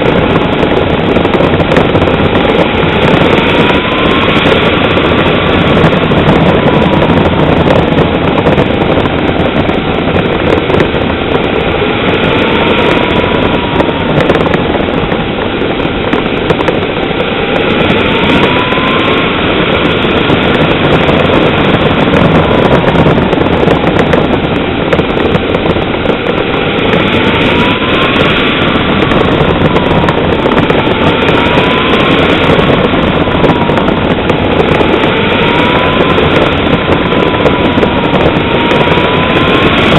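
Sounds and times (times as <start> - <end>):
model jet engine whine: 0.0 - 39.9.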